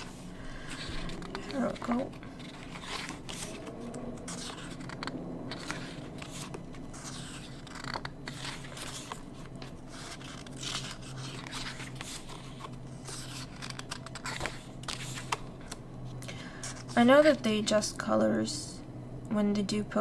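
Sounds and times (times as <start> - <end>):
paper rustling and scraping: 0.0 - 15.8.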